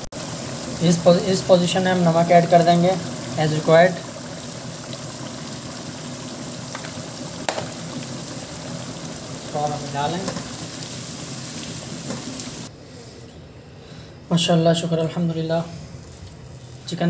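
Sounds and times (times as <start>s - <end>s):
gravy sizzling in a pan: 0.0s - 12.7s.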